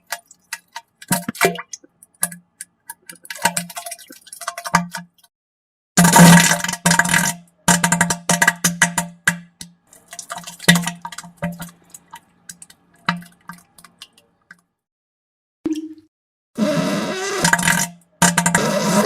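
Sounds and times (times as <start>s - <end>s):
wet sputtering fart: 16.6s - 19.0s.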